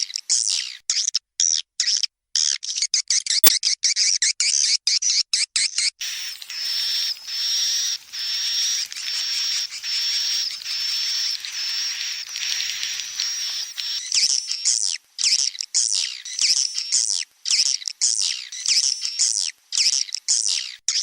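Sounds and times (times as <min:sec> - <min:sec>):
short chittering twitters: 0:06.0 - 0:20.8
buzzy rasping bird chirps: 0:06.0 - 0:21.0.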